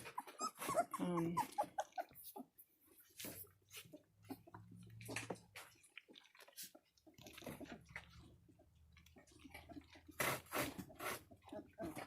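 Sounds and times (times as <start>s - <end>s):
puppies lapping and chewing: 0.0s - 12.0s.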